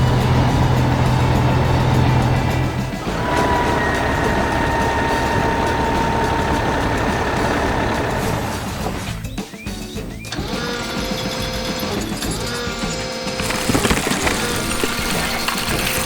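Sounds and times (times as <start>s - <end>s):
heavy machine engine rumbling: 0.0s - 9.2s.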